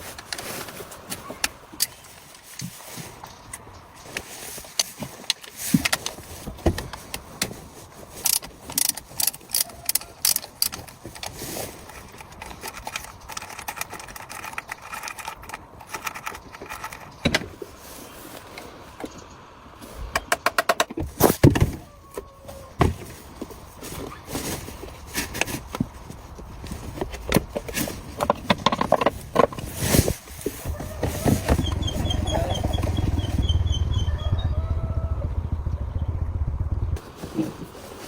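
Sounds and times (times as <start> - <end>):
metal parts clinking: 8.2 - 17.3.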